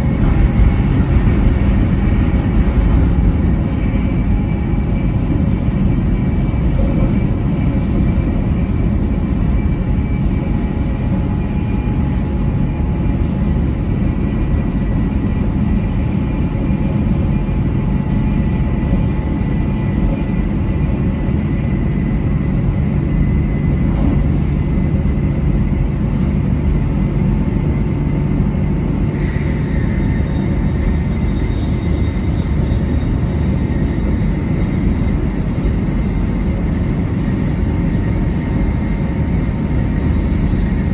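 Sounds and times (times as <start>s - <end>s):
faint whining tones: 0.0s - 27.1s
train rumbling at speed: 0.0s - 40.9s.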